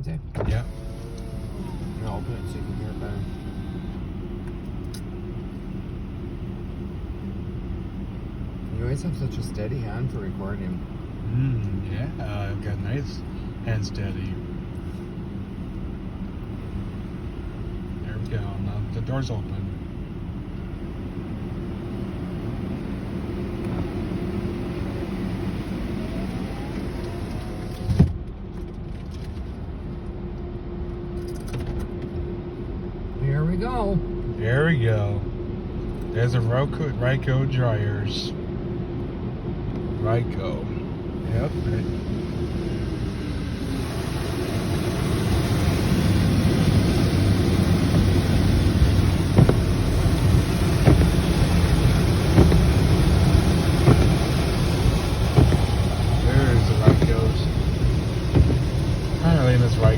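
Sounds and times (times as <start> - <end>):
car wash machinery humming: 0.0 - 59.9
loud thump: 48.9 - 59.9
brief knocks: 49.4 - 49.8, 50.4 - 51.2, 52.3 - 52.8, 55.3 - 55.9, 58.3 - 58.9.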